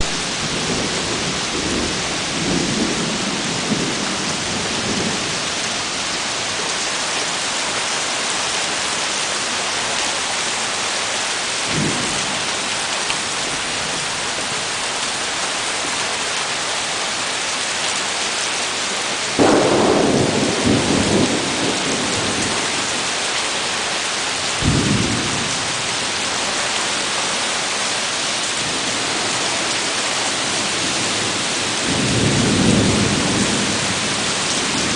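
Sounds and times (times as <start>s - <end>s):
heavy rain hissing: 0.0s - 34.9s
thunderclap: 19.4s - 22.5s
rolling thunder: 19.4s - 23.1s, 24.5s - 26.1s, 30.7s - 34.9s.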